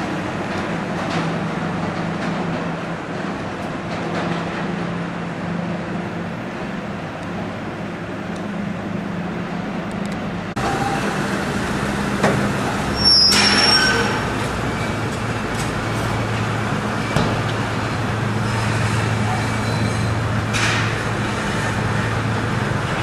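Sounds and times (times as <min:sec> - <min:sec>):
truck engine running: 0:00.0 - 0:23.0
hiss with thin squeal: 0:13.0 - 0:14.2.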